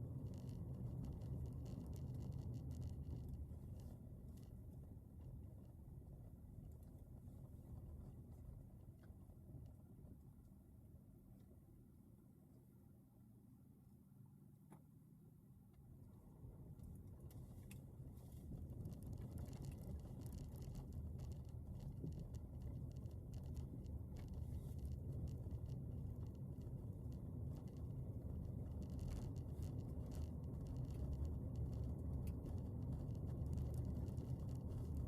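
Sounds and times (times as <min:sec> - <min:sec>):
low vehicle rumble: 0:00.0 - 0:11.8, 0:12.8 - 0:35.0
light clicks and ticks: 0:00.1 - 0:04.6, 0:16.8 - 0:35.0.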